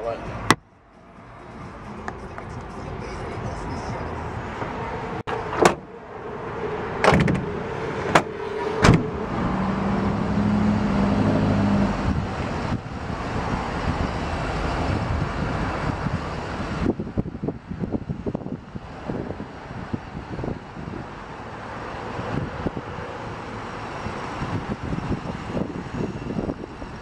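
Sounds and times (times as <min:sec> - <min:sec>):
outdoor rush with low hum: 0:00.0 - 0:27.0
van doors banging shut: 0:05.5 - 0:05.9, 0:07.0 - 0:07.5, 0:08.1 - 0:09.2.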